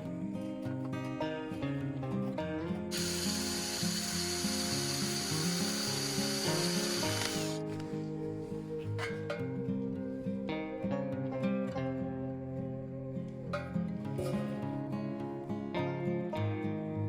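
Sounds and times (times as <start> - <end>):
acoustic guitar music: 0.0 - 17.0
power tool on metal: 2.9 - 7.6.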